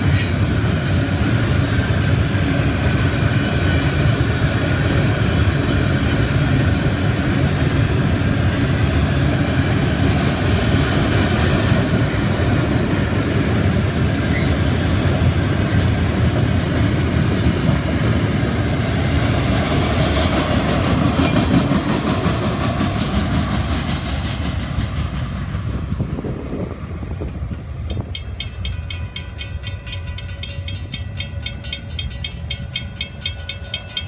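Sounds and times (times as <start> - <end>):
freight train rolling past: 0.0 - 34.0
train wheel clatter: 0.0 - 34.0
crossing bell ringing: 26.6 - 34.0.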